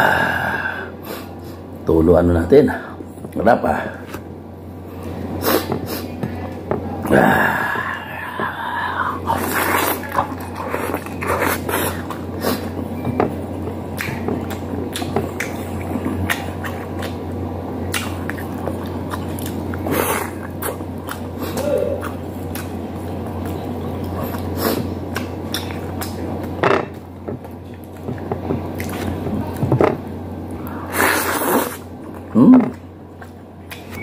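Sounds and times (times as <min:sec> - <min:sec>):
steady low hum: 0:00.0 - 0:34.0
man chewing food: 0:03.0 - 0:34.0
wet smacking clicks: 0:13.9 - 0:17.2, 0:17.9 - 0:19.8, 0:25.1 - 0:30.0, 0:32.1 - 0:34.0.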